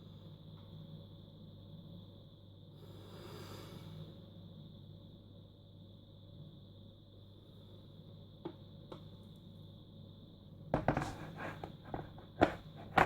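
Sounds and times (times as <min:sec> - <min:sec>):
room hum: 0:00.0 - 0:13.0
clattering knocks of objects: 0:10.8 - 0:13.0.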